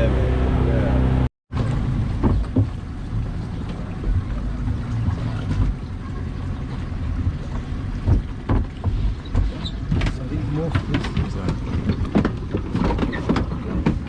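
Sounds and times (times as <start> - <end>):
boat engine rumbling: 0.0 - 14.0
small knocks: 7.6 - 14.0.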